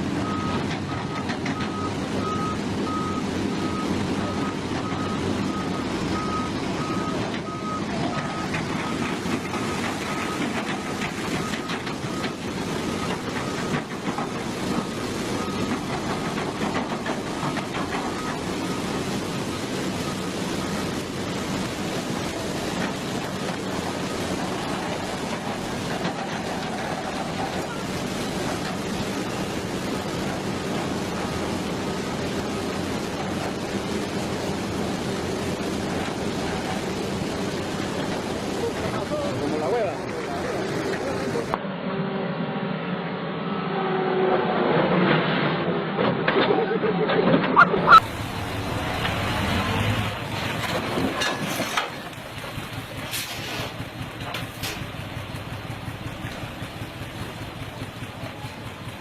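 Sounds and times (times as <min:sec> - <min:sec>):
engine and road noise: 0:00.0 - 0:59.0
reversing alarm beeping: 0:00.2 - 0:13.8, 0:14.8 - 0:15.8.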